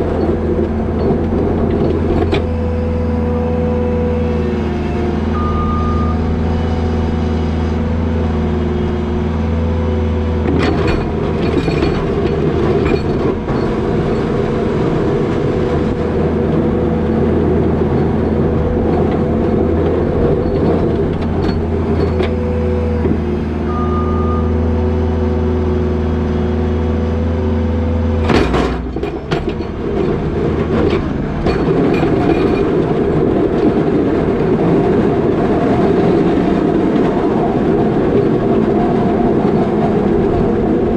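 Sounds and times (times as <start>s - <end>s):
diesel engine running: 0.0s - 40.9s
plow pushing wet snow: 0.0s - 40.9s
knocks and clatter: 10.4s - 16.2s, 18.0s - 23.2s, 28.2s - 37.2s.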